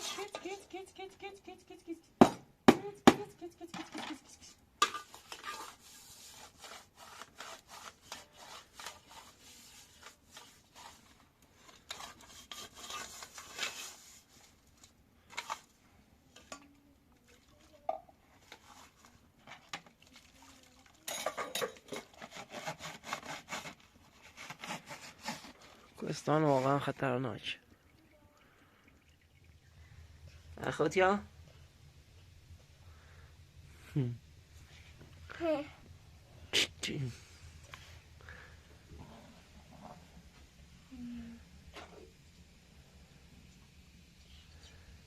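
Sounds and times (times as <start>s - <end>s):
rubbing and scraping: 0.0s - 0.7s, 3.6s - 15.7s, 18.4s - 20.0s, 21.5s - 27.0s.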